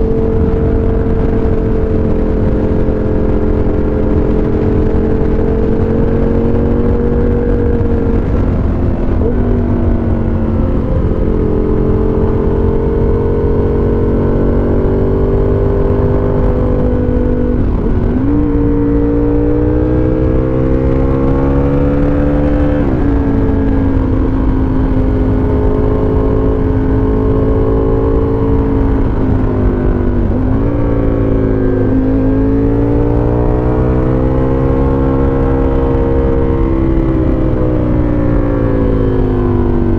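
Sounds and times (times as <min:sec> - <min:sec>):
muffled motorcycle engine while riding: 0:00.0 - 0:39.9.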